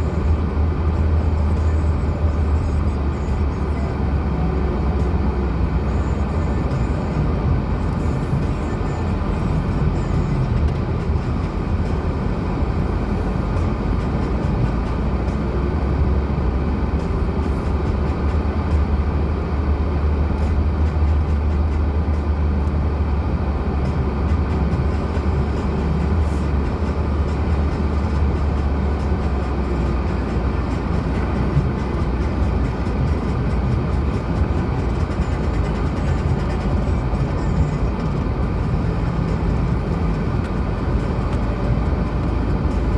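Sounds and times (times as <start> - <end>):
car engine and tyre rumble: 0.0 - 42.9.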